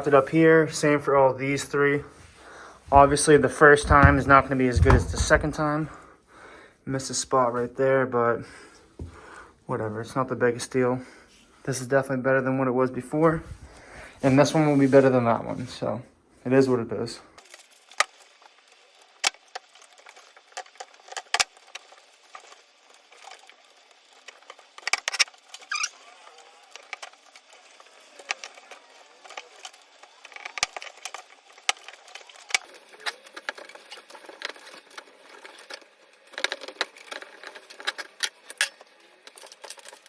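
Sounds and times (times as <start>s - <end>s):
hands handling metal pipes: 2.9s - 5.6s.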